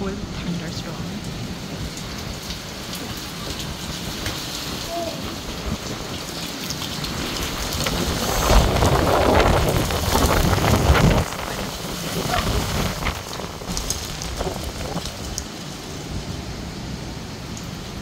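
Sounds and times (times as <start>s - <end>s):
heavy rain pouring: 0.0s - 18.0s
deep rumble: 7.1s - 15.4s.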